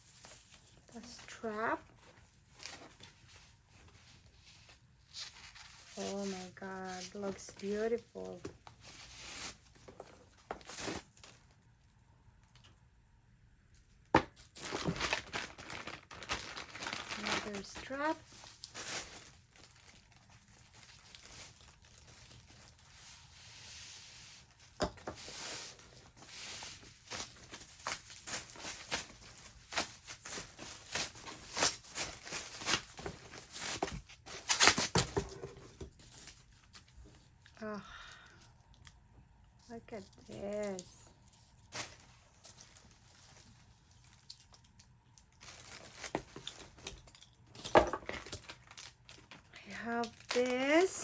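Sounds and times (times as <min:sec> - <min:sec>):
packaging rustling: 0:14.4 - 0:37.0, 0:40.1 - 0:51.0.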